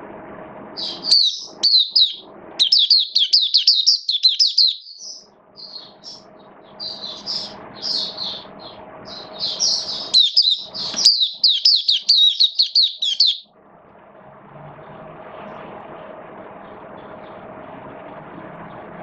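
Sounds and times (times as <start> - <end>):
bird chirping song: 0.8 - 13.5.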